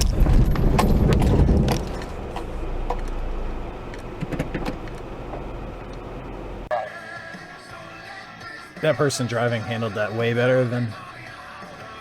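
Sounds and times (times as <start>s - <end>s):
car road and engine rumble: 0.0s - 6.8s
clicks and knocks: 3.9s - 6.0s.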